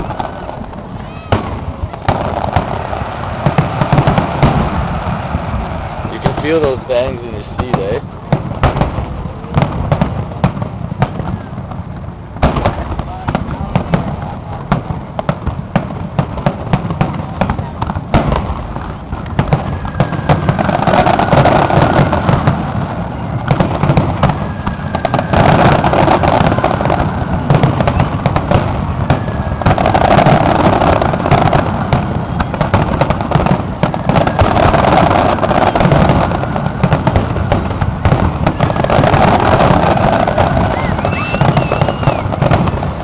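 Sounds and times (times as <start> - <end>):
fireworks bangs and crackling: 0.0 - 43.0.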